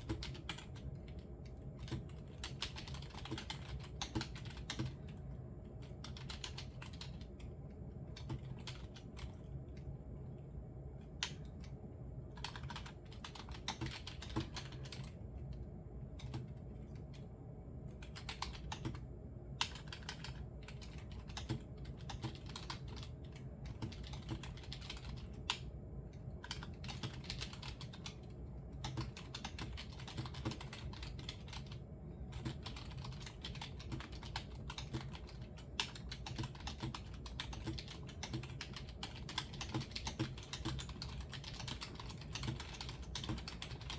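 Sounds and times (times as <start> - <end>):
typing on computer keyboard: 0.0 - 9.9, 12.4 - 15.6, 16.2 - 43.9
low background hum: 0.0 - 43.9.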